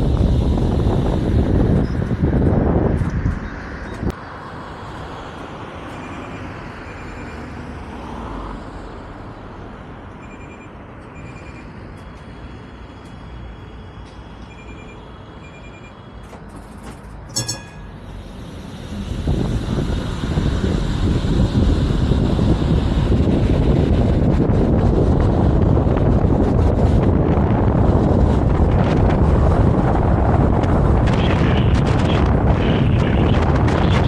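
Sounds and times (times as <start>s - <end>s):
short high beeps: 6.0s - 7.4s, 10.2s - 11.7s, 14.5s - 16.0s, 17.4s - 18.0s
tram humming: 9.5s - 31.1s
sharp clattering signal: 14.4s - 18.1s
tram pulling away: 16.0s - 30.9s.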